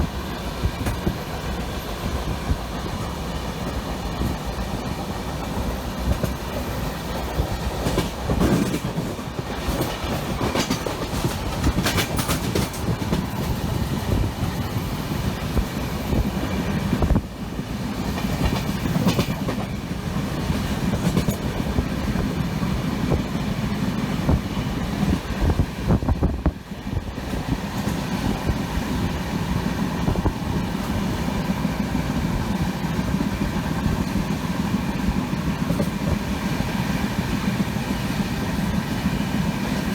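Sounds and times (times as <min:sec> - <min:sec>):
train rumbling along track: 0:00.0 - 0:39.9.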